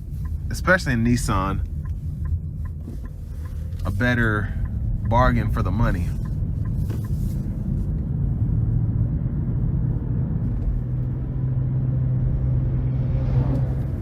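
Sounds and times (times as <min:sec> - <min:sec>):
car engine humming: 0:00.0 - 0:14.0
tyres rumbling on road: 0:00.0 - 0:14.0.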